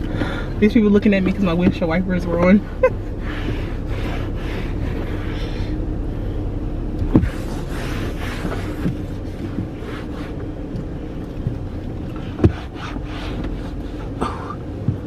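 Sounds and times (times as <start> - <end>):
car hum: 0.0 - 15.0
cloth wiping surfaces: 2.6 - 5.8, 7.1 - 10.5, 12.2 - 14.5.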